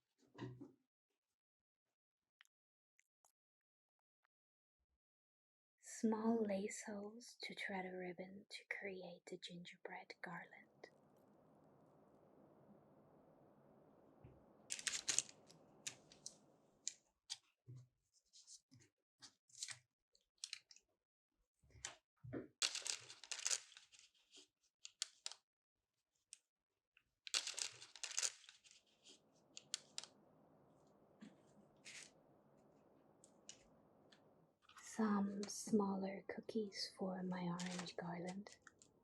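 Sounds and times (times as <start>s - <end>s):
paper crinkling and tearing: 14.7s - 16.4s, 22.6s - 25.4s, 27.3s - 30.2s, 31.8s - 32.2s, 37.6s - 38.8s.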